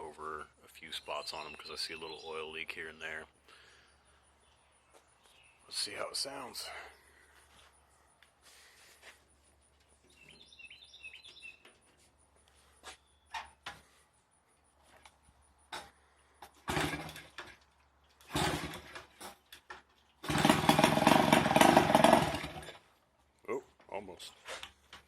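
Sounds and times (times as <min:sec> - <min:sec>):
bird chirp: 0:00.4 - 0:08.2, 0:09.4 - 0:13.6
motorcycle engine bursts: 0:16.5 - 0:17.4, 0:18.2 - 0:19.2, 0:20.2 - 0:22.8.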